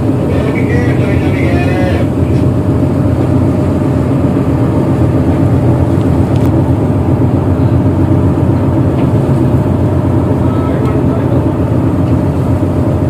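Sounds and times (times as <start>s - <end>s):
diesel engine low rumble: 0.0s - 13.0s.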